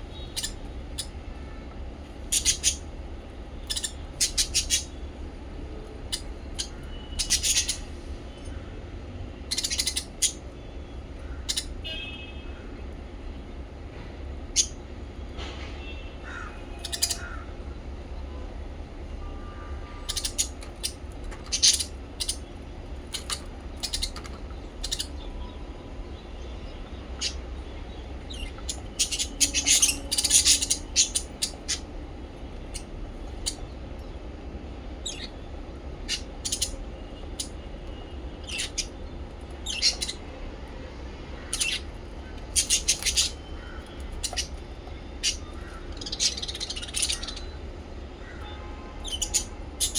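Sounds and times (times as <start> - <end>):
parrots chirping: 0.0 - 5.0, 6.0 - 8.4, 9.5 - 10.5, 11.2 - 12.1, 14.4 - 14.8, 16.2 - 17.4, 20.0 - 34.2, 35.0 - 40.3, 41.4 - 49.9
steady low hum: 17.2 - 49.8.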